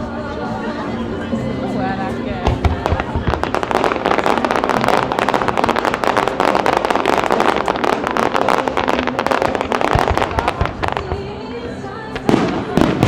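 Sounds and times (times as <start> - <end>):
fireworks crackling bangs: 2.0 - 13.0.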